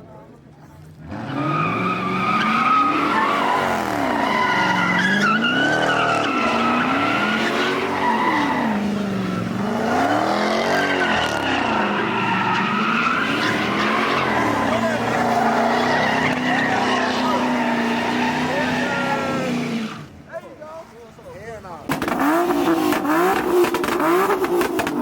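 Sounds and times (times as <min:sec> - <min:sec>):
car engine revving: 0:01.0 - 0:20.2, 0:21.9 - 0:25.0
tyres squealing: 0:01.2 - 0:20.2.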